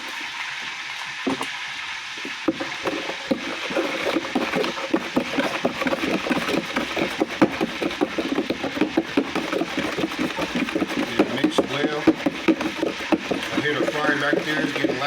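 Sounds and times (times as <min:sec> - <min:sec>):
oil sizzling: 0:00.0 - 0:15.0
water sloshing while stirred: 0:00.0 - 0:15.0.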